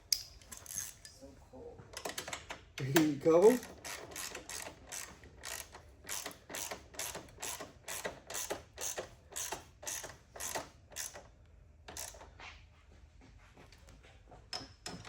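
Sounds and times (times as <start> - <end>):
ratchet wrench clicking: 0.1 - 1.1, 2.8 - 11.2, 11.9 - 12.2.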